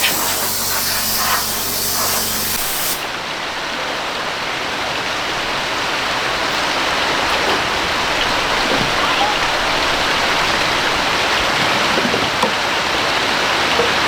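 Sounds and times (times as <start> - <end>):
water spraying: 0.0 - 3.4
running water splashing: 0.0 - 14.0.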